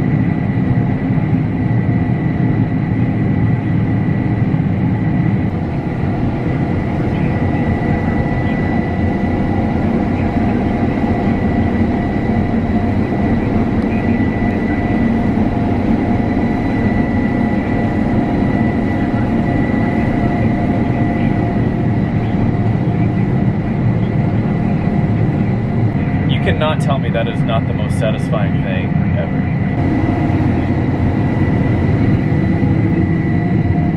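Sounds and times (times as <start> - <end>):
combine harvester running: 5.4 - 33.9.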